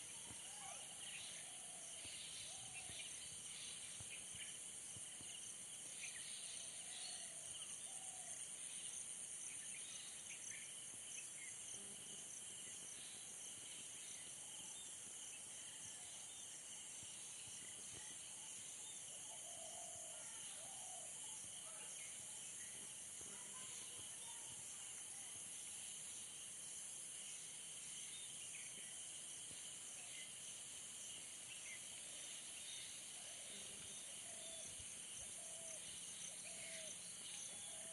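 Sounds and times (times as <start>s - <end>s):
crickets and insects trilling: 25.8s - 37.9s.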